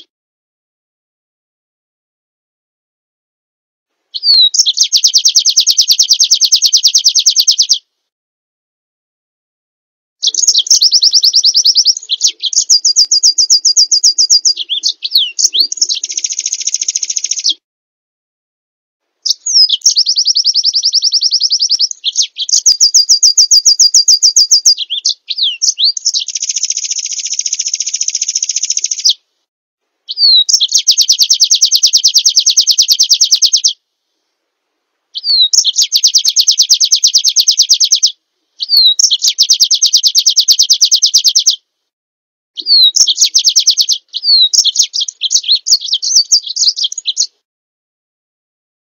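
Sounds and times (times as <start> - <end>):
songbird trilling: 4.1 - 7.8, 10.2 - 17.6, 19.2 - 29.2, 30.1 - 33.8, 35.2 - 41.6, 42.6 - 47.4.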